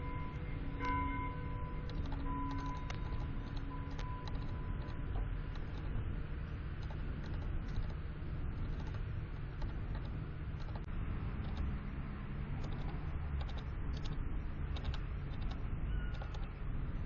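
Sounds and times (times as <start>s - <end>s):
faint ringing tone: 0.0s - 11.6s, 15.2s - 17.0s
steady low rumble: 0.0s - 17.0s
birds pecking taps and clicks: 14.8s - 16.5s.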